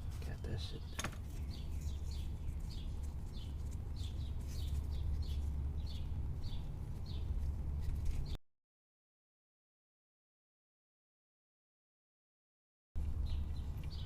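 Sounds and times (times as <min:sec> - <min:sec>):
small bird chirping: 0:00.0 - 0:08.4, 0:13.0 - 0:14.0
steady low rumble: 0:00.0 - 0:08.4, 0:13.0 - 0:14.0.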